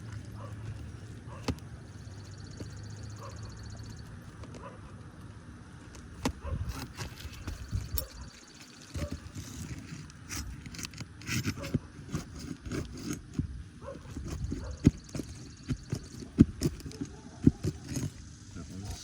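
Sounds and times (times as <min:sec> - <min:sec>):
roofing tool scraping shingles: 0:06.6 - 0:19.0.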